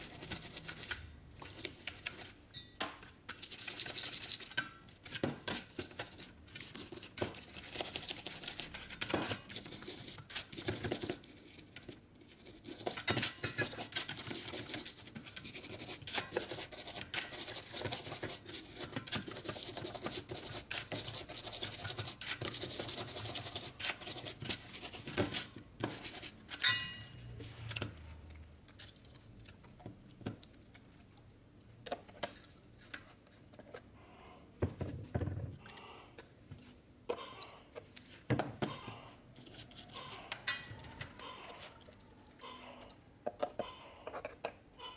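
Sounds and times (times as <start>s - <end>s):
brush scrubbing metal parts: 0.0s - 2.4s, 3.3s - 28.0s, 38.7s - 41.8s.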